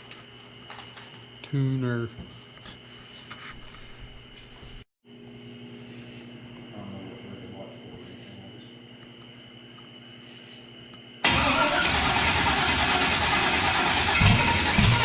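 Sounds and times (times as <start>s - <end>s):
engine cranking and starting: 11.2s - 15.0s.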